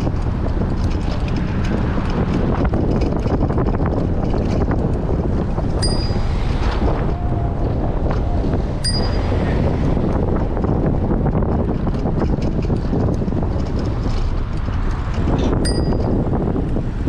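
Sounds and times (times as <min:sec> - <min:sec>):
wind buffeting microphone: 0:00.0 - 0:17.0
short high dings: 0:05.8 - 0:06.2, 0:08.8 - 0:09.2, 0:15.6 - 0:16.1.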